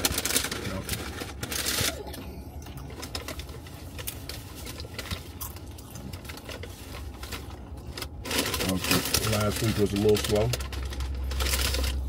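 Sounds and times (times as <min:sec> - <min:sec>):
clicks and crackles of eating: 0:00.0 - 0:12.0
low car cabin hum: 0:00.0 - 0:12.0
person chewing: 0:01.8 - 0:08.2.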